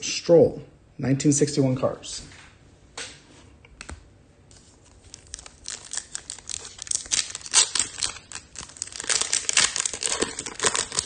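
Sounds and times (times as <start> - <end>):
foil wrapper tearing and crinkling: 4.8 - 11.0.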